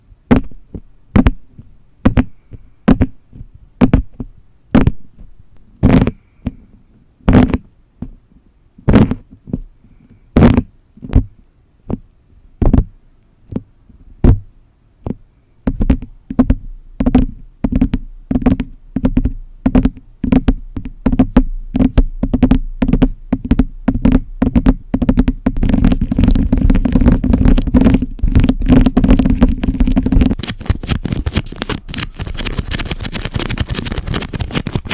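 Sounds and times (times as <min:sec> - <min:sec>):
tapping on tiles: 0:02.0 - 0:03.2, 0:11.9 - 0:12.9, 0:15.0 - 0:34.9
scratchy rustle: 0:25.6 - 0:34.9.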